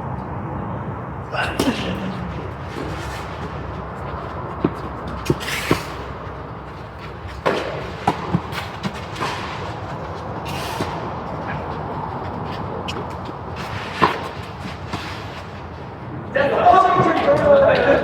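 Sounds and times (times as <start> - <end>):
tennis ball hit by rackets: 1.5 - 15.8
tennis ball bouncing: 1.5 - 16.1.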